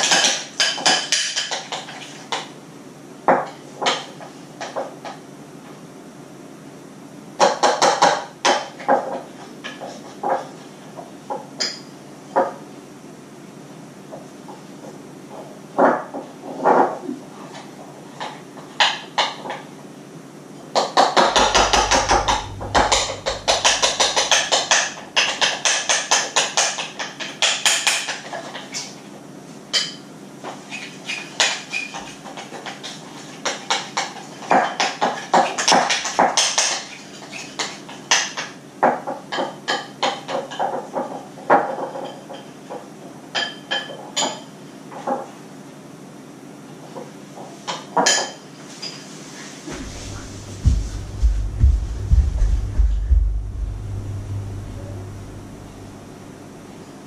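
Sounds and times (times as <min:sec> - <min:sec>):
utensils knocking against mixing bowl: 0:20.8 - 0:28.1.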